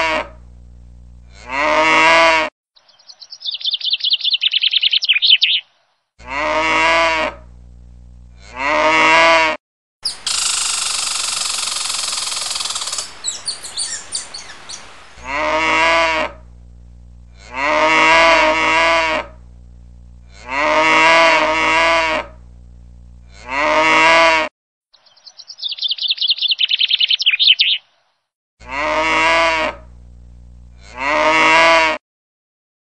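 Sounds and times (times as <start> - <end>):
cow mooing: 1.3 - 2.5, 6.2 - 7.5, 8.4 - 9.6, 15.2 - 16.4, 17.3 - 19.4, 20.3 - 22.4, 23.3 - 24.5, 28.6 - 29.9, 30.8 - 32.0
fast high chirps: 2.9 - 5.6, 10.0 - 14.9, 25.1 - 27.8.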